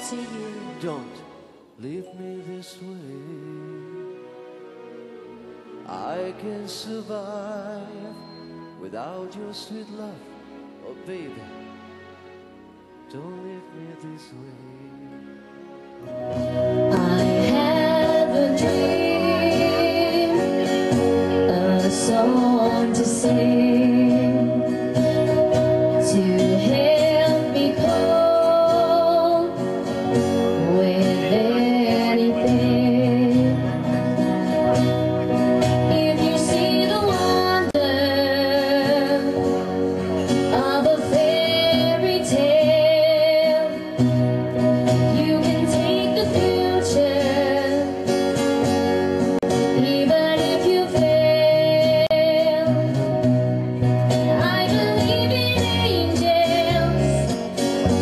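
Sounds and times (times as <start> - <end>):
instrumental backing track: 0.0 - 58.0
woman singing with vibrato: 16.4 - 48.2, 49.6 - 53.2, 54.2 - 57.5.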